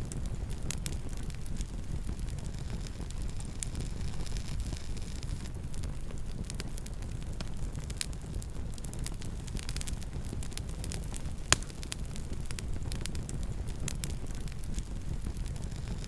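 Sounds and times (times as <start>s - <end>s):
campfire crackles and pops: 0.0s - 16.0s
campfire low rumble: 0.0s - 16.0s.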